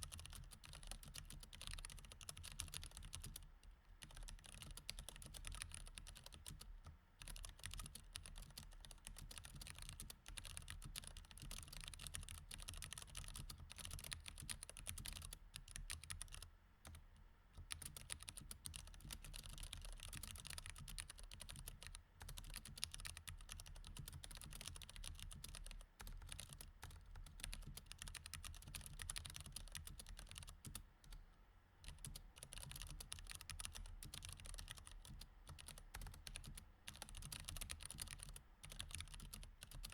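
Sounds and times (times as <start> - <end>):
rapid mechanical keyboard typing: 0.0 - 17.0, 17.6 - 30.8, 31.8 - 39.9.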